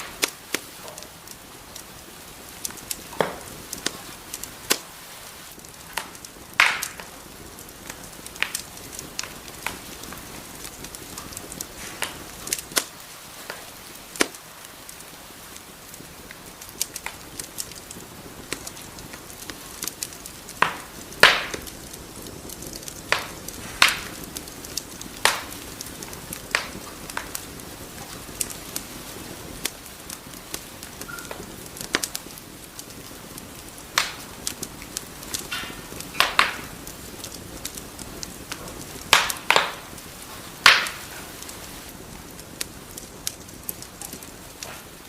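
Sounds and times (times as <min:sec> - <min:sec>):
burning wood popping: 0:00.0 - 0:45.0
soft fire hiss: 0:00.0 - 0:45.0.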